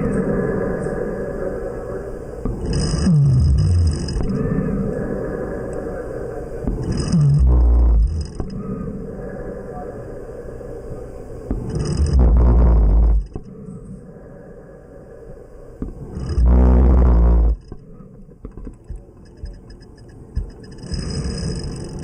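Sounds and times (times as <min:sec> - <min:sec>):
loud buzzing snores: 0:02.5 - 0:04.8, 0:06.7 - 0:08.5, 0:11.6 - 0:13.4, 0:16.0 - 0:17.8, 0:20.7 - 0:22.0.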